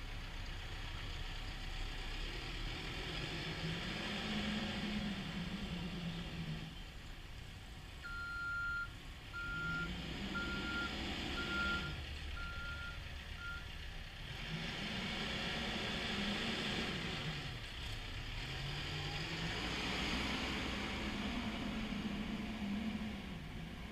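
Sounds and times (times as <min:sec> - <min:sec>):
diesel engine running: 0:00.0 - 0:23.9
reverse alarm beeping: 0:08.0 - 0:13.6.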